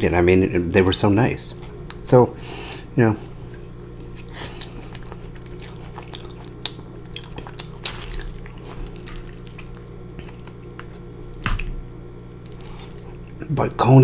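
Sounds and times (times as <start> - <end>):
wet squishy chewing: 3.2 - 13.4.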